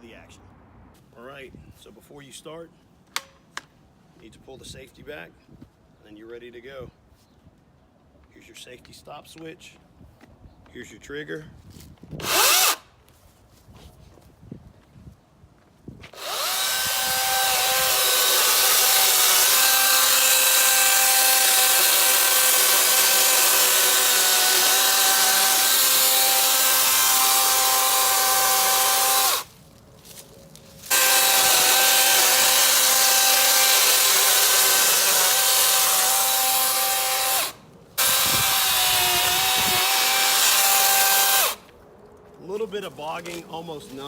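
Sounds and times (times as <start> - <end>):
electric chainsaw cutting limbs: 12.2 - 12.9, 16.0 - 30.2, 30.8 - 41.7.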